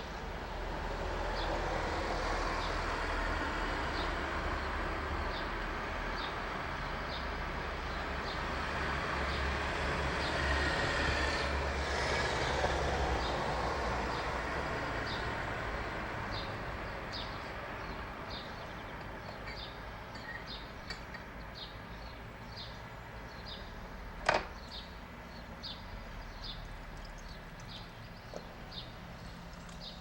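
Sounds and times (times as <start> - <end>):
passing traffic rumble: 0.0 - 30.0
bird chirping: 16.3 - 23.8, 24.4 - 30.0.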